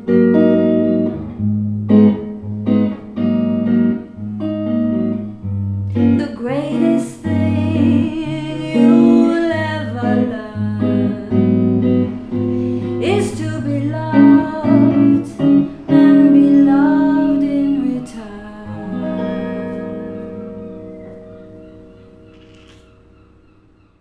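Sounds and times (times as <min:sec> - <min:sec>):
acoustic guitar chords: 0:00.0 - 0:22.4
person singing: 0:05.9 - 0:21.2.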